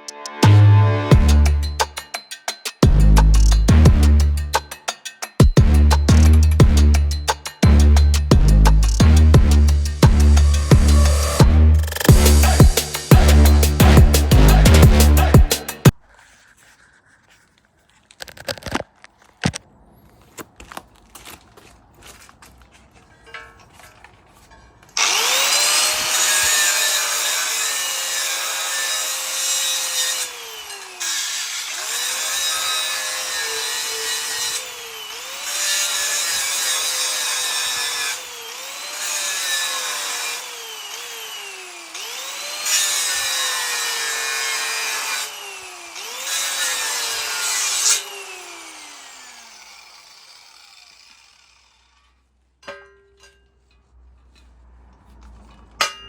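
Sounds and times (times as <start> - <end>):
power grinder grinding: 9.5 - 16.0, 23.7 - 52.3.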